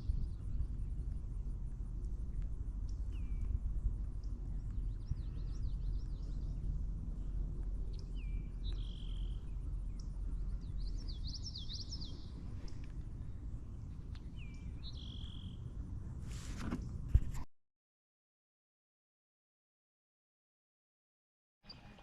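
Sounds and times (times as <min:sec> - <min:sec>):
songbirds chirping: 0:00.0 - 0:17.0, 0:21.6 - 0:22.0
low rumble of outdoor noise: 0:00.0 - 0:17.5, 0:21.6 - 0:22.0.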